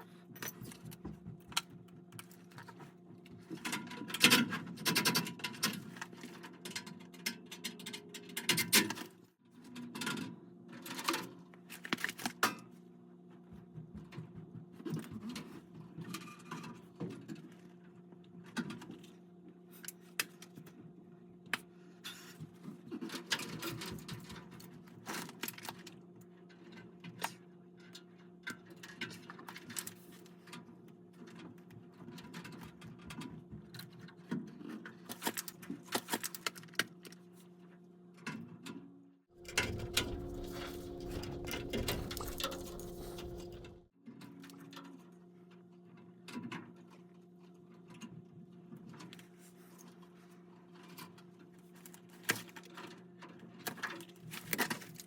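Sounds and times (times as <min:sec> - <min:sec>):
steady mechanical hum: 0:39.4 - 0:43.9.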